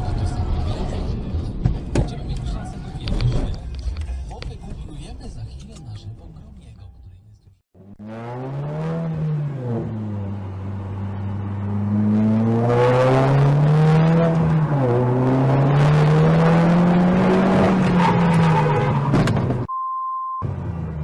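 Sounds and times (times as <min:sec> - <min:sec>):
car engine accelerating: 0:07.8 - 0:19.7, 0:20.4 - 0:21.0.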